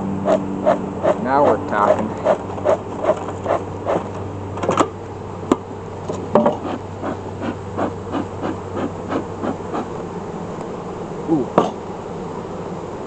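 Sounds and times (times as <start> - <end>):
bellows puffing: 0.2 - 4.2, 6.5 - 10.2.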